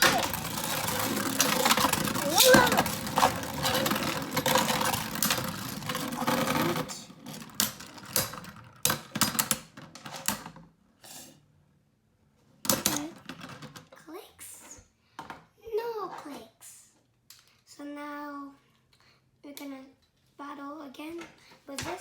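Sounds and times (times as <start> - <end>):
spinning tops clashing rattle: 0.0 - 6.9
plastic tops clacking: 0.0 - 9.4.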